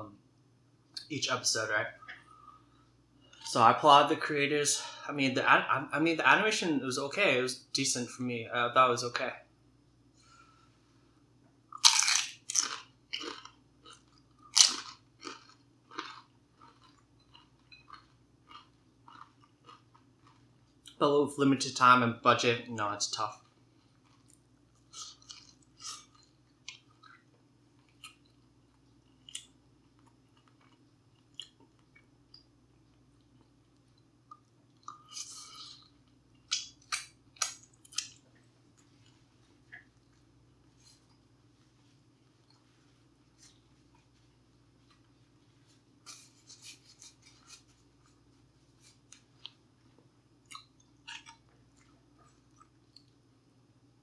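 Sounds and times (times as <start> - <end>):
steady low hum: 0.0 - 54.0
close-up chewing: 11.8 - 20.9, 23.4 - 41.2, 48.8 - 53.2
wet mouth clicks and smacks: 36.5 - 38.2.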